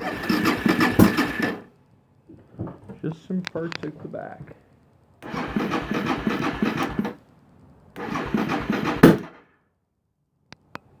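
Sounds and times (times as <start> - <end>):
engine cranking on starter: 0.0 - 1.7, 5.2 - 7.2, 8.0 - 9.5.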